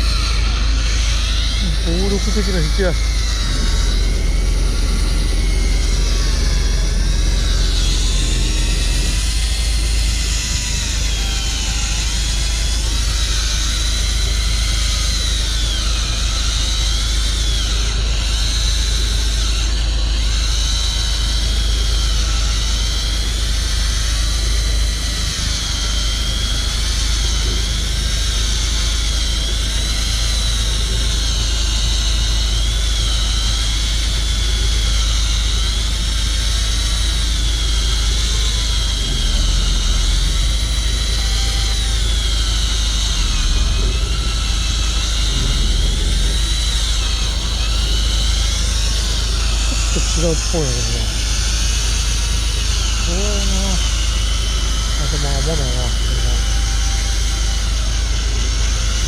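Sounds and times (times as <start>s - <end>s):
electric fishing reel motor whine: 0.0s - 59.0s
low rumble: 1.1s - 14.3s, 37.0s - 56.5s.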